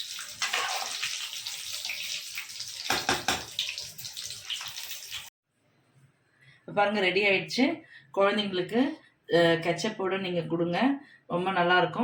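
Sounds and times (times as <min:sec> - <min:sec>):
batter frying in hot oil: 0:00.0 - 0:05.3.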